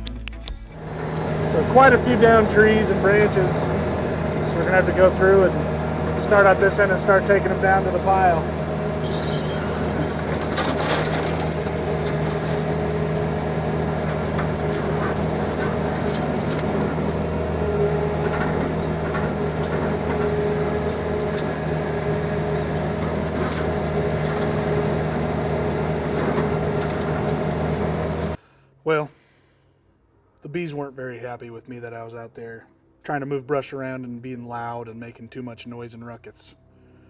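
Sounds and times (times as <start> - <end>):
tractor engine under load: 0.5 - 28.4.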